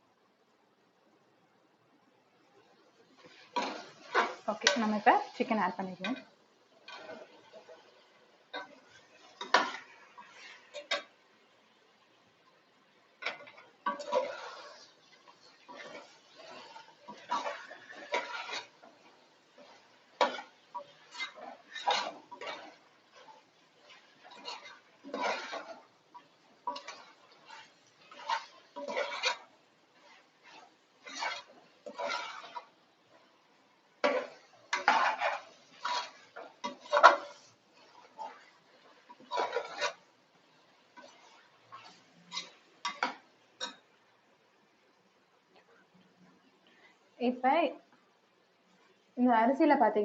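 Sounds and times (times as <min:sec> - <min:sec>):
spoon stirring in pot: 0:03.0 - 0:44.2.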